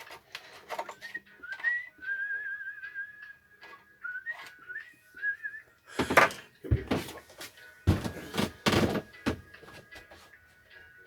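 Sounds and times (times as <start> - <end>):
person whistling a tune: 1.0 - 6.3.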